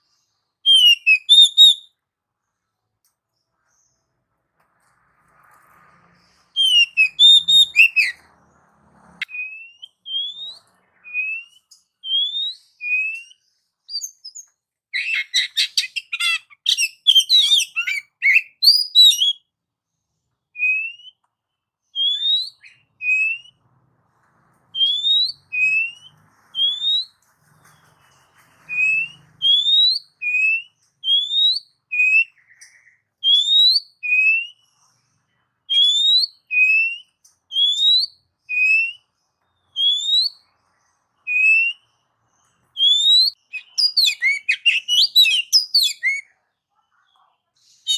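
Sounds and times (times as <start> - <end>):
bird whistling: 0.6 - 1.9, 6.5 - 8.2, 9.2 - 19.4, 20.6 - 21.2, 21.9 - 23.6, 24.7 - 27.2, 28.7 - 34.8, 35.7 - 39.1, 39.7 - 40.5, 41.2 - 41.9, 42.8 - 46.3.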